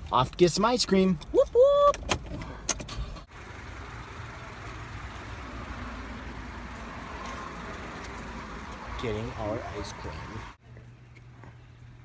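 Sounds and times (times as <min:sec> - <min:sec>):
road noise: 0:00.0 - 0:12.0
car engine running: 0:03.1 - 0:10.6.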